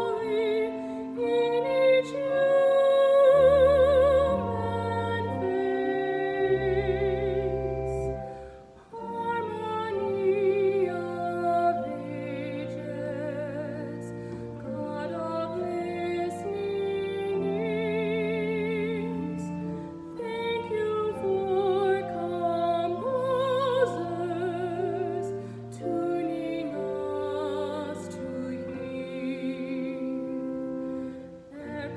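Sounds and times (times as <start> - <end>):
solo voice singing with vibrato: 0.0 - 31.9
sustained musical accompaniment: 0.0 - 31.9.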